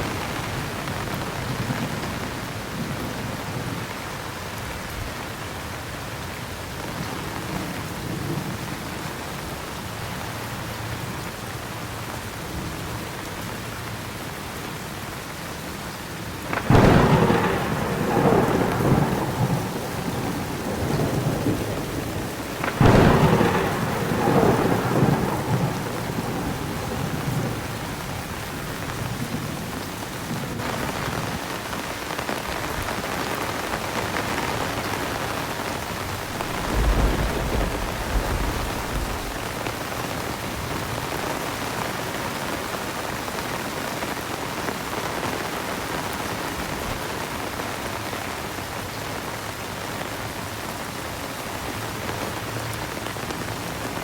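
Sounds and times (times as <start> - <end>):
thunderclap rumbling: 0.0 - 3.8, 16.4 - 31.7, 32.5 - 41.8
heavy rain pouring: 0.0 - 54.0
low roll of thunder: 16.4 - 31.5, 34.0 - 41.8.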